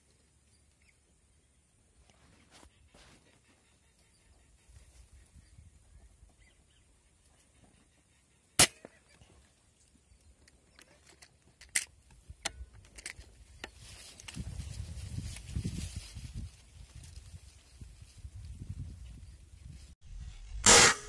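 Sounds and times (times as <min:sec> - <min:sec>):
air rifle shot: 0:20.6 - 0:21.0.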